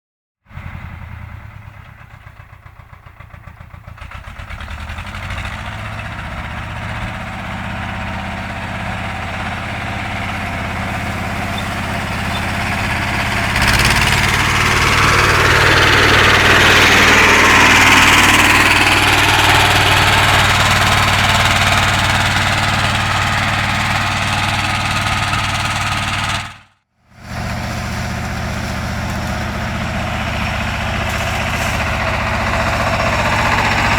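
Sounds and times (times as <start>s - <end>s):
tractor engine running: 0.5s - 33.9s
rushing clattering noise: 27.3s - 33.9s.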